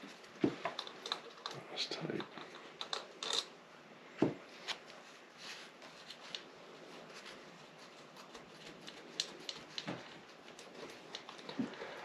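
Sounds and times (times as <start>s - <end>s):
metal parts clicking and clinking: 2.2s - 3.5s.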